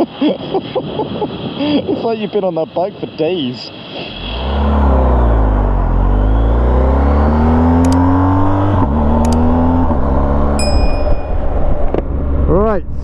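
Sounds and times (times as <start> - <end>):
motorcycle engine accelerating: 4.2 - 12.4.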